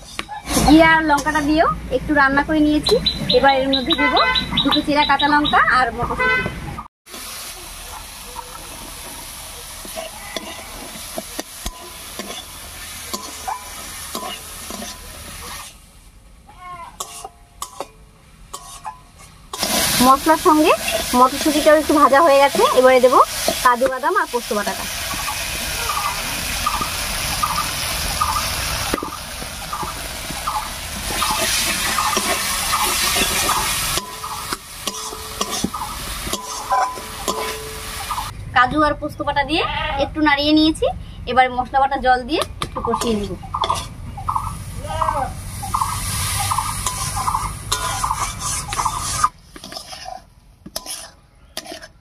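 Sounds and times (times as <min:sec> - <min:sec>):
metal spatula scraping pan: 0:00.0 - 0:01.6, 0:09.8 - 0:15.8, 0:17.0 - 0:24.7, 0:31.0 - 0:38.1, 0:43.0 - 0:44.0, 0:46.5 - 0:52.0
vegetables sizzling in oil: 0:07.1 - 0:16.2, 0:17.0 - 0:38.3, 0:42.8 - 0:52.0.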